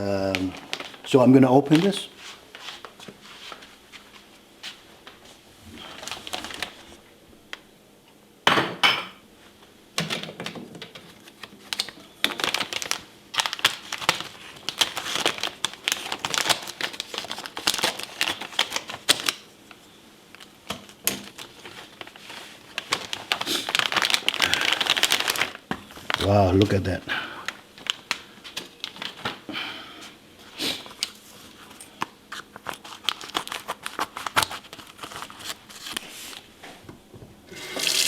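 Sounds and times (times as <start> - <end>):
packaging crinkling: 0.2 - 2.0, 5.8 - 7.0, 11.0 - 29.4, 30.8 - 36.5, 37.5 - 38.0.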